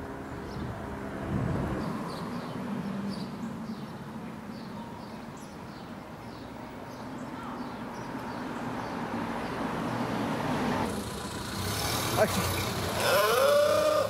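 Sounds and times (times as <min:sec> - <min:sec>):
small birds chirping: 0:01.8 - 0:09.7.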